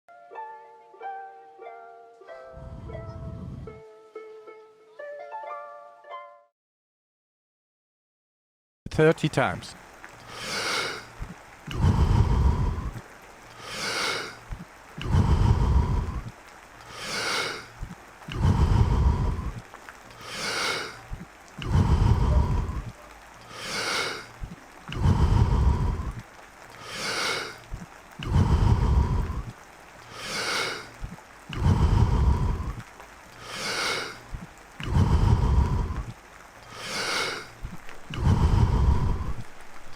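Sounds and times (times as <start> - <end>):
man breathing forcefully: 10.3 - 11.1, 11.7 - 13.0, 13.6 - 14.4, 15.0 - 19.6, 20.2 - 26.2, 26.8 - 29.5, 30.1 - 39.7.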